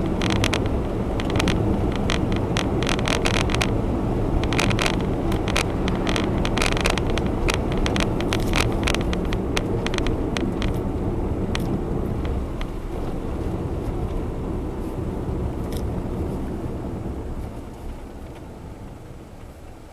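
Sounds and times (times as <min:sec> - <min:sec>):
irregular clicks and ticks: 0:00.0 - 0:13.1
car road and engine rumble: 0:00.0 - 0:19.9.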